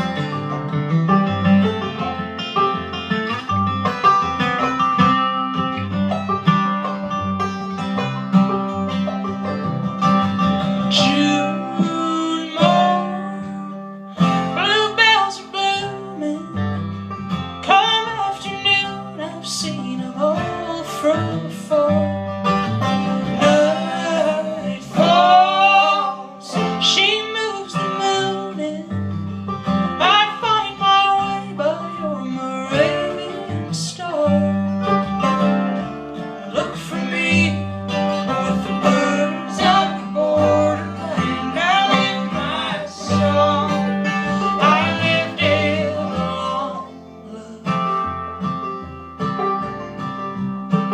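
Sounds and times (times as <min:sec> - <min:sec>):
bass line: 0:00.0 - 0:50.9
plucked acoustic guitar: 0:00.0 - 0:50.9
person singing: 0:10.8 - 0:16.7, 0:17.6 - 0:22.2, 0:23.3 - 0:29.0, 0:30.0 - 0:35.0, 0:36.4 - 0:48.1.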